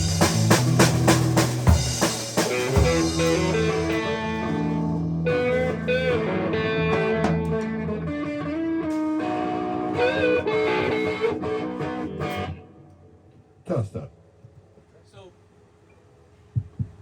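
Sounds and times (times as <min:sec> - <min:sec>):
bass and drums: 0:00.0 - 0:09.1, 0:16.6 - 0:17.0
blues electric guitar: 0:00.0 - 0:13.5.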